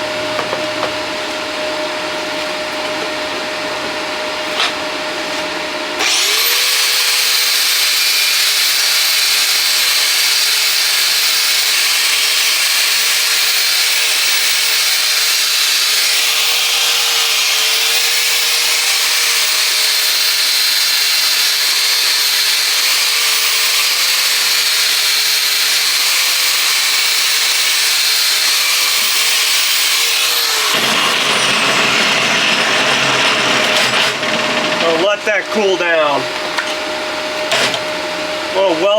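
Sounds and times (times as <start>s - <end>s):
angle grinder on steel: 6.0s - 36.0s.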